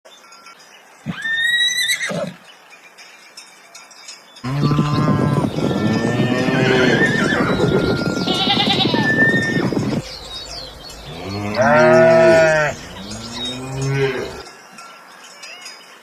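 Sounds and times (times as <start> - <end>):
farm animal calls: 4.4 - 14.5.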